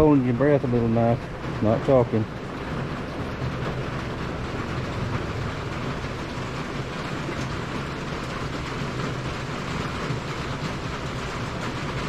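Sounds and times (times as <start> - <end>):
heavy rain on a roof: 0.0 - 12.0.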